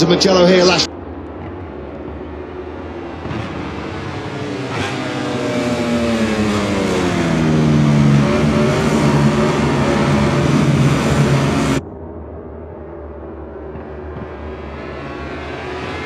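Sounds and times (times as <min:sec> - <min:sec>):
racing motorcycle engine revving: 0:02.5 - 0:11.8, 0:13.6 - 0:16.0.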